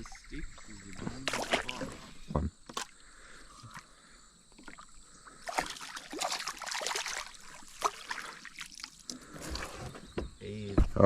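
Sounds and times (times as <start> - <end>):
water splashing around a kayak: 0.0 - 10.1.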